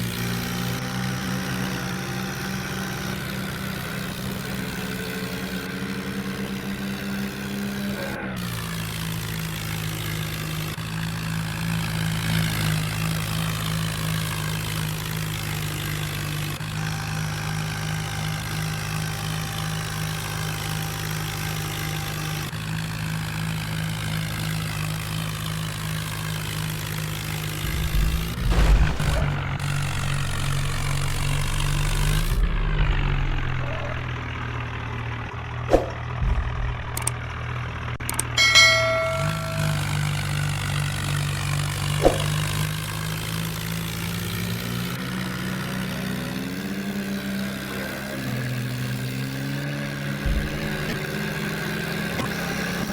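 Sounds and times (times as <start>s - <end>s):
tractor engine running: 0.0s - 52.9s
knocks and low thumps: 27.6s - 34.2s, 35.7s - 40.0s.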